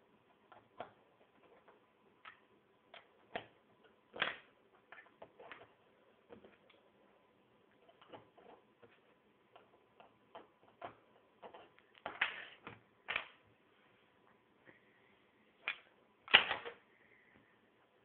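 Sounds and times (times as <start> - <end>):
plastic pieces clicking and clattering: 15.6 - 16.8.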